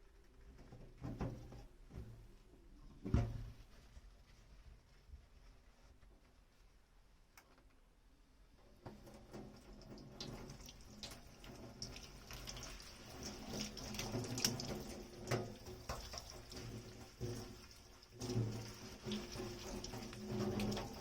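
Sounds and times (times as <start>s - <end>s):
tap running into a sink: 8.8s - 21.0s.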